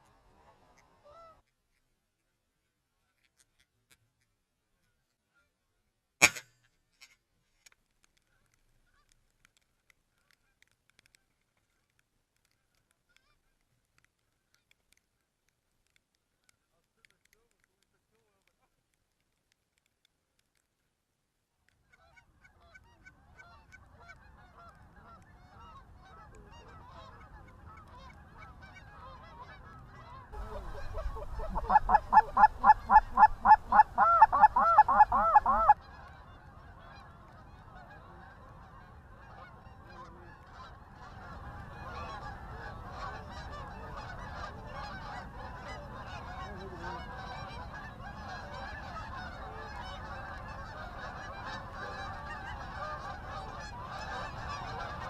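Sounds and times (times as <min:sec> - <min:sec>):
geese honking: 0:21.9 - 0:55.0.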